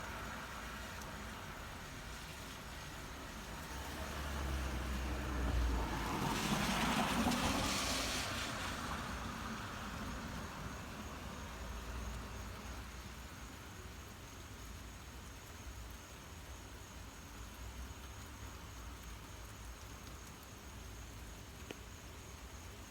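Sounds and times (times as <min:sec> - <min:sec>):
road vehicle passing by: 0:00.1 - 0:12.6.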